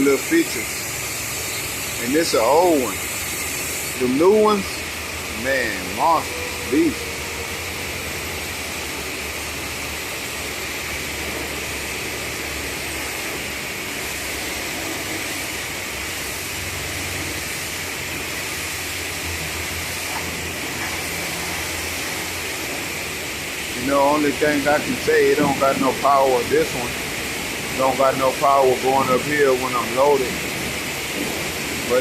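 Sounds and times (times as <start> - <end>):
water spray hissing: 0.0 - 32.0.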